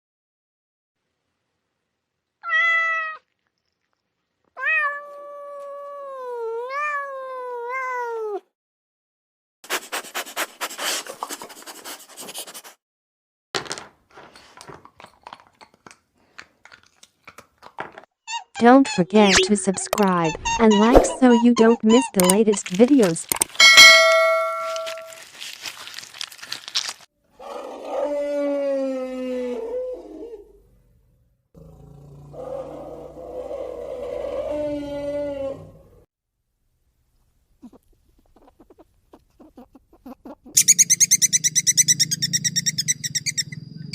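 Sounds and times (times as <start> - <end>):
cat meowing: 2.4 - 3.3, 4.6 - 8.4
ringing tone: 23.6 - 25.1
animal long drawn-out call: 27.4 - 30.4, 31.6 - 35.9.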